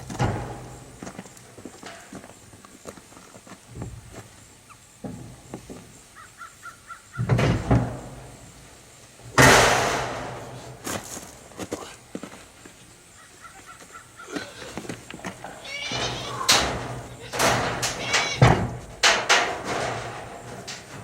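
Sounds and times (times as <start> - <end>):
bird calls: 5.8 - 7.5, 12.9 - 17.3.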